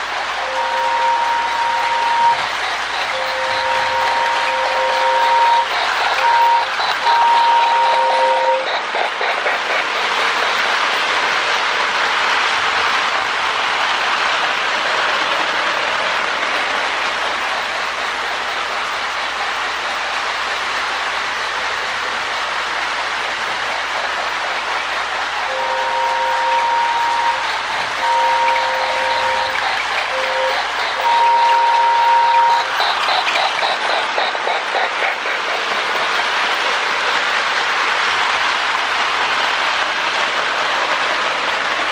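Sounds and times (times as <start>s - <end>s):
electronic steam chuffing hiss: 0.0s - 41.6s
model train running on track: 0.0s - 41.9s
two-tone train whistle: 0.4s - 8.7s, 25.4s - 32.9s.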